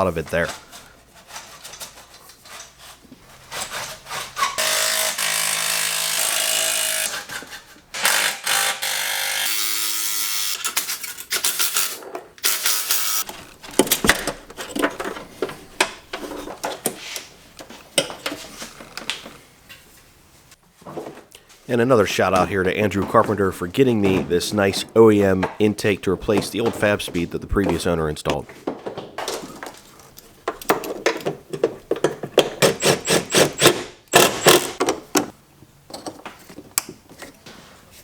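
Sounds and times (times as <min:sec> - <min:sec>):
hand tools clanking and clicking: 0:10.7 - 0:19.1, 0:22.2 - 0:37.4.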